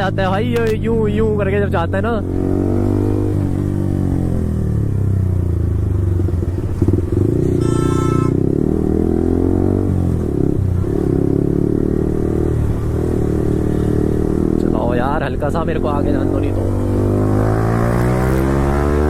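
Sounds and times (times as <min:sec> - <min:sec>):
motorcycle engine revving: 0:00.0 - 0:19.0
short horn toot: 0:07.4 - 0:08.4.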